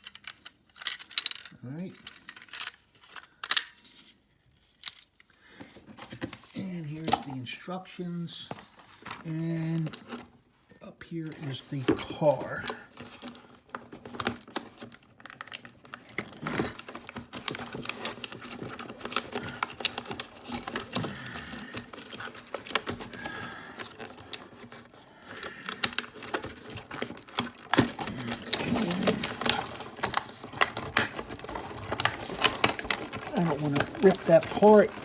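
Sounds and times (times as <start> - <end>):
plastic toy parts clicking: 0.0 - 3.8
cardboard packaging handled: 11.2 - 35.0.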